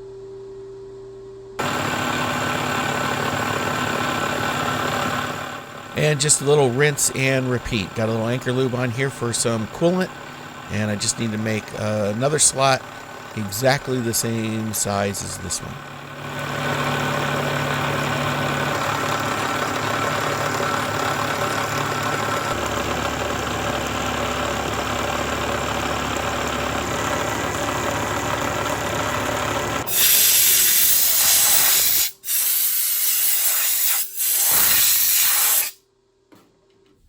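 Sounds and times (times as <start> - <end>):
milling machine cutting: 1.6 - 35.8
compressed air hissing: 29.9 - 35.8.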